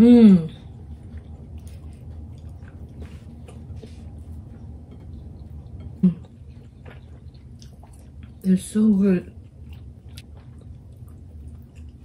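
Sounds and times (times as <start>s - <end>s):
chewing clicks and smacks: 1.0s - 8.4s, 9.6s - 12.0s.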